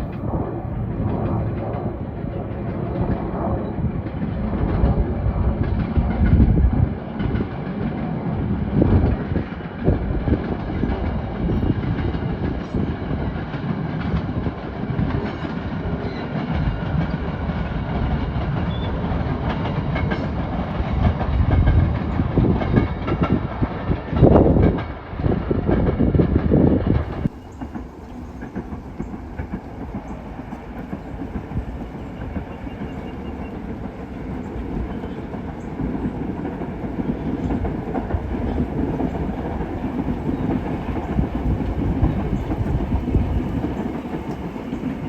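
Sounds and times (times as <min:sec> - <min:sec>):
train rumbling past: 0:00.0 - 0:45.0
wheels knocking on track: 0:27.0 - 0:45.0.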